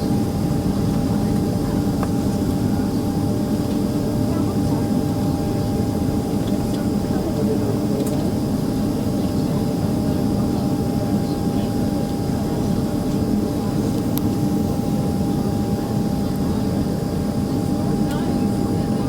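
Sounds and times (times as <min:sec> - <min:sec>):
jet engine cabin drone: 0:00.0 - 0:19.0.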